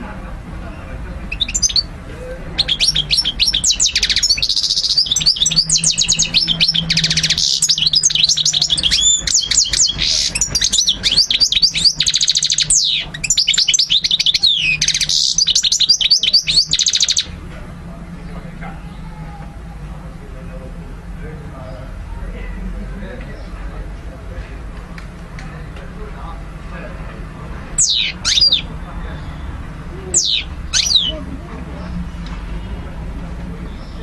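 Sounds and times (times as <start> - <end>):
goldfinch singing trills: 1.3 - 1.9, 2.5 - 17.3, 27.8 - 29.4, 30.1 - 31.2.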